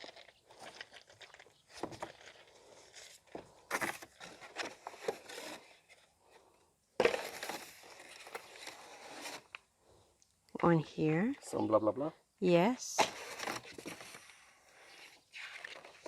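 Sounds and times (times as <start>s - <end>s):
cardboard packaging rustling and scraping: 0.0s - 6.4s, 7.0s - 9.6s, 13.0s - 16.0s.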